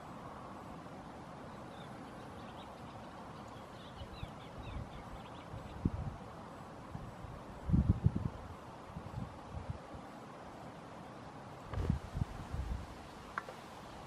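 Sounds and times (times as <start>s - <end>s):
steady outdoor hiss: 0.0s - 14.0s
small bird chirping: 1.5s - 5.9s.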